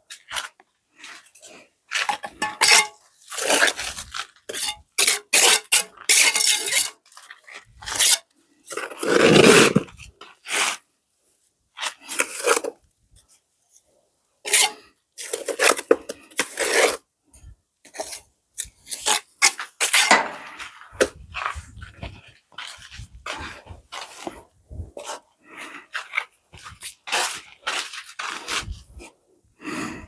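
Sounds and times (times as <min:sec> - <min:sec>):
scraping and rubbing: 0:02.0 - 0:10.8, 0:18.8 - 0:29.2.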